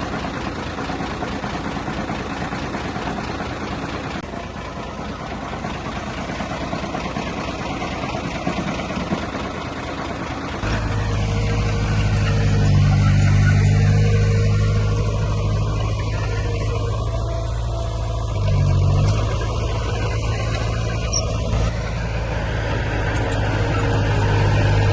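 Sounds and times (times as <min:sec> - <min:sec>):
heavy diesel machinery engine: 0:00.0 - 0:24.9.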